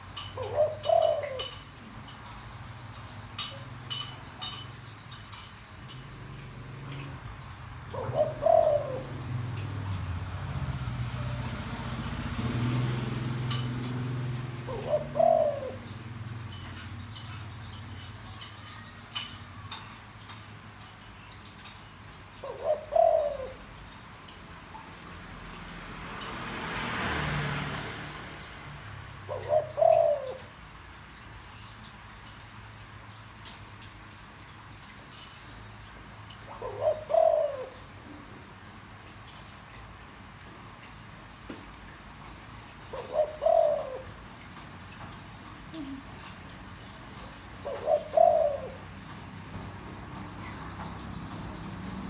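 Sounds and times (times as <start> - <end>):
dove cooing: 0.1 - 2.8, 7.8 - 20.3, 22.4 - 24.0, 28.9 - 30.9, 36.4 - 39.4, 42.6 - 52.0.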